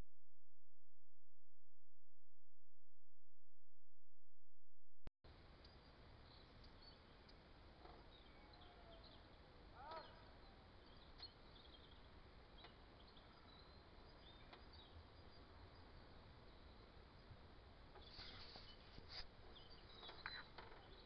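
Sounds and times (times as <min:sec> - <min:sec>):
faint songbirds chirping: 0:05.3 - 0:21.0.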